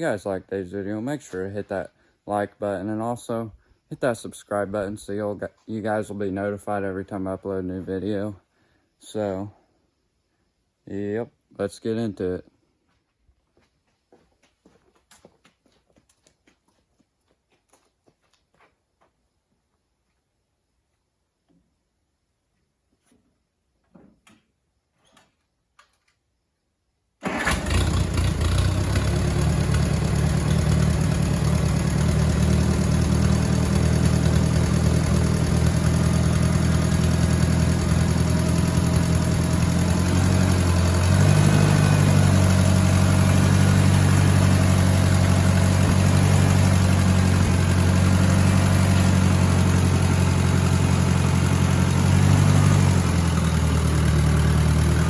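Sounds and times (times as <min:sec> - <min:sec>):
tractor engine idling: 0:27.2 - 0:55.0.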